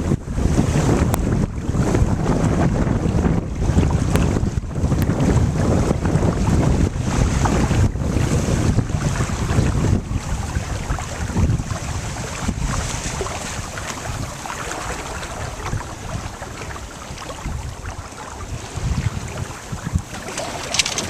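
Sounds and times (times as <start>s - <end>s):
water splashing along hull: 0.0s - 21.0s
wind buffeting microphone: 0.0s - 21.0s.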